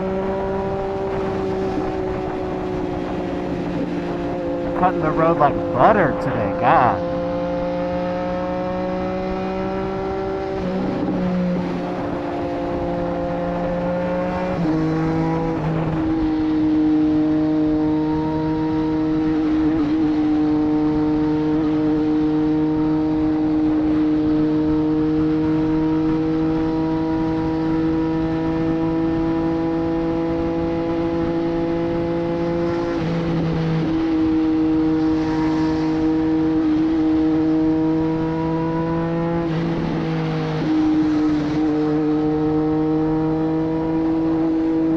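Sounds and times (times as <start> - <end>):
motorcycle engine cruising: 33.9 - 44.9.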